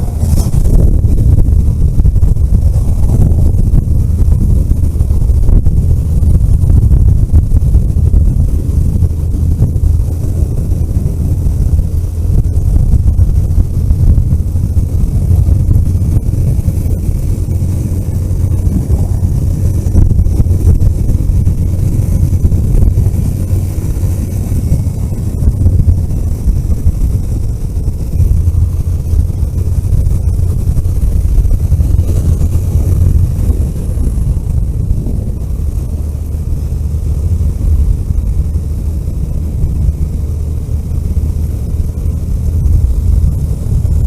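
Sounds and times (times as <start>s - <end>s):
car engine and tyres rumbling: 0.0s - 44.0s
wind hiss: 0.0s - 44.0s.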